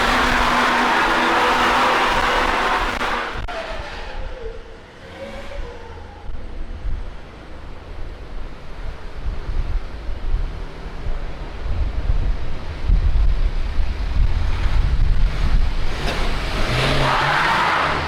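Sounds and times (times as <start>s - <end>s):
car driving away: 0.0s - 9.2s, 13.7s - 18.0s
wind buffeting microphone: 8.7s - 16.4s.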